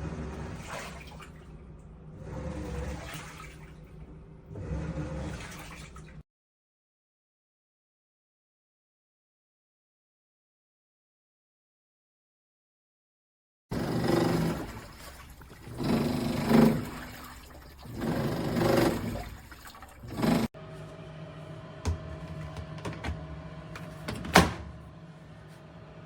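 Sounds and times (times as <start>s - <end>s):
washing machine churning water: 0.0s - 6.2s, 13.7s - 26.0s
motor hum: 13.7s - 26.0s.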